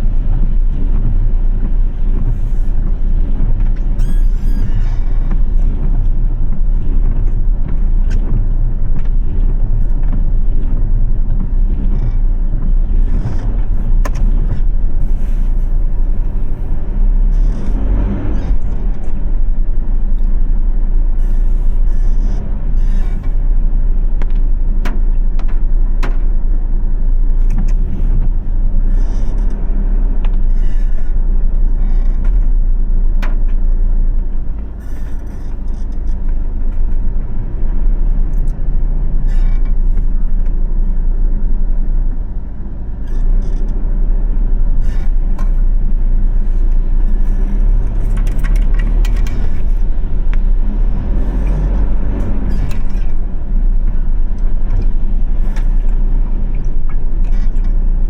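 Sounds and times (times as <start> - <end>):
engine and tyre rumble: 0.0 - 58.0.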